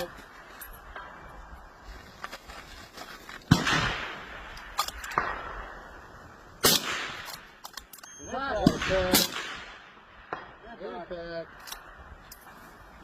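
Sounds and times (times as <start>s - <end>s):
rifle shots with rolling echo: 3.5s - 7.9s, 8.5s - 10.7s.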